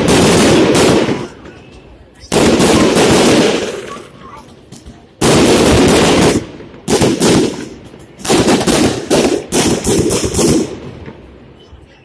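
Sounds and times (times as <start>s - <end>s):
fireworks bangs: 0.0s - 11.9s.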